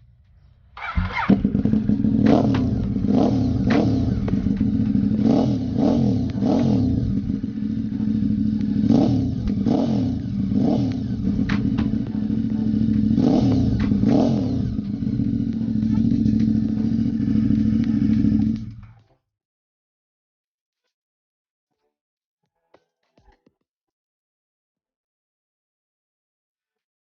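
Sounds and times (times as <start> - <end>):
engine throttle blips: 0.7 - 19.0
motorcycle engine idling: 0.8 - 19.0.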